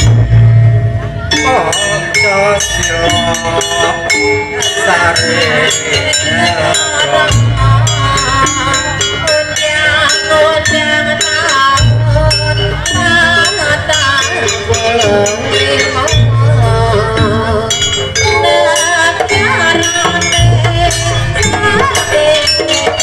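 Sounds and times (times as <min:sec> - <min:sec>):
deep low drum stroke: 0:00.0 - 0:01.4
quick percussion: 0:00.0 - 0:23.0.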